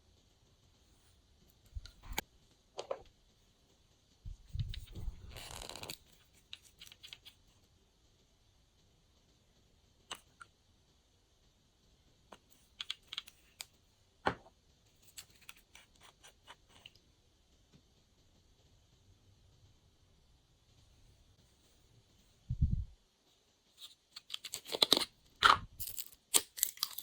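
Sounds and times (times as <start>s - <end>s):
handling noise with low thumps: 4.3s - 5.3s.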